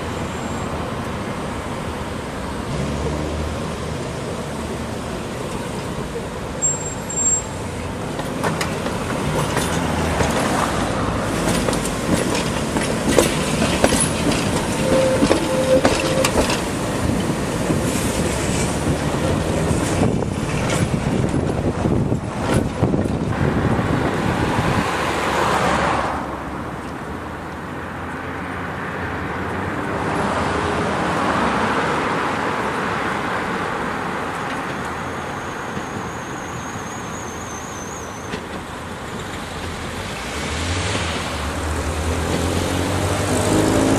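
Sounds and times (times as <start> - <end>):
vehicle passing: 2.7 - 5.1, 39.9 - 43.9
tram wheels clattering over rails: 2.7 - 23.3, 34.1 - 43.9.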